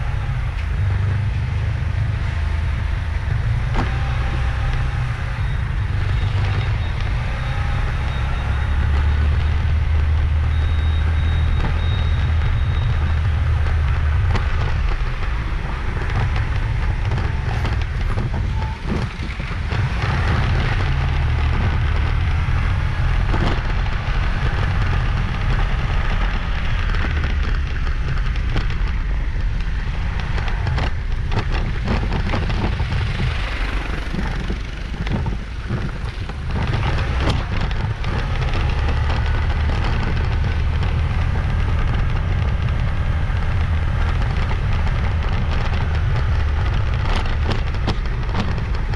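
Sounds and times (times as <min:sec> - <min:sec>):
crackles and clicks: 0:00.0 - 0:48.9
motorcycle engine: 0:00.0 - 0:48.9
tyre noise on road: 0:00.0 - 0:48.9
wind buffeting microphone: 0:00.0 - 0:48.9.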